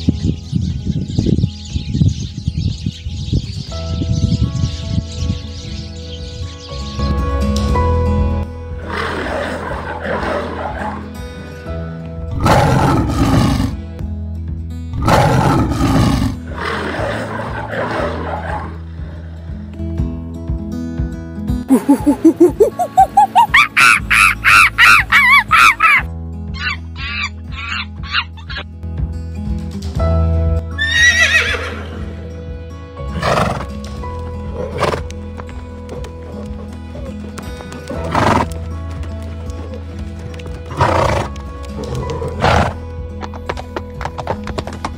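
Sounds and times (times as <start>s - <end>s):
background music with held notes: 0.0s - 44.9s
lion roaring: 8.8s - 11.1s, 12.4s - 13.8s, 15.0s - 19.2s
horse neighing: 21.7s - 28.6s, 30.8s - 32.1s.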